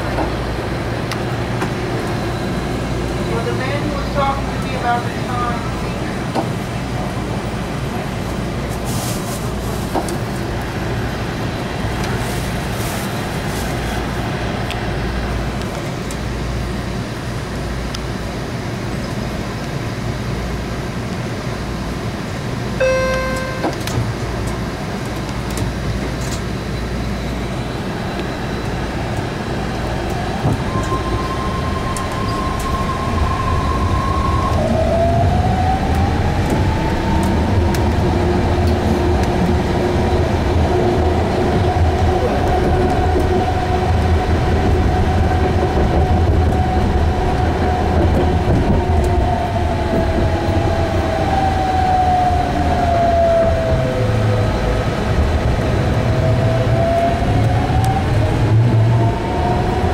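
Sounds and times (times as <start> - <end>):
train rumbling: 0.0 - 59.9
short beep: 22.8 - 24.0
rising whine: 22.8 - 24.1.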